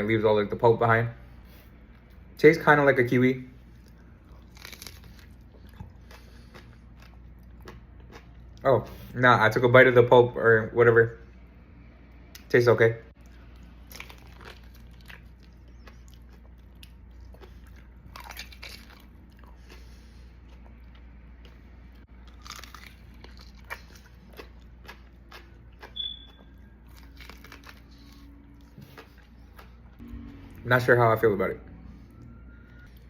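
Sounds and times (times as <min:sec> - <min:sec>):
person chewing wetly: 0:03.6 - 0:08.6, 0:13.2 - 0:30.5
short high squeak: 0:26.0 - 0:26.5.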